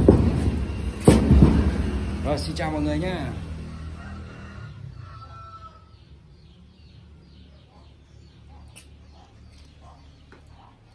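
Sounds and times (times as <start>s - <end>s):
low steady rumble: 0.0s - 5.2s
birds chirping: 0.0s - 10.9s.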